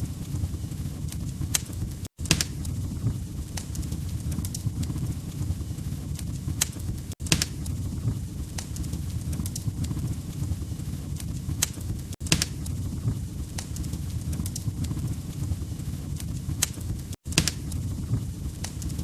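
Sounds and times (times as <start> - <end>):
log fire crackling and popping: 0.0 - 19.0
low rumble of flames: 0.0 - 19.0.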